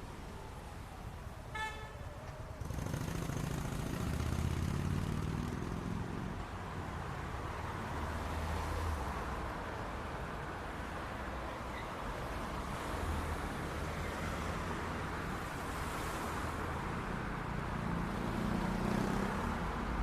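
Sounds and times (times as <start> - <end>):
vehicle engines passing: 2.1 - 20.0.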